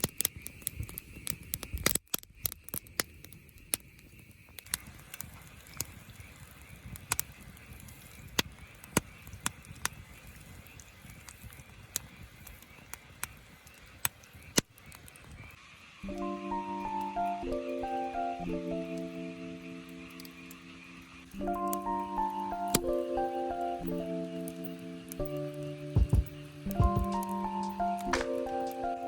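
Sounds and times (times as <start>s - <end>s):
campfire crackling and popping: 0.0s - 29.0s
music: 16.0s - 29.0s.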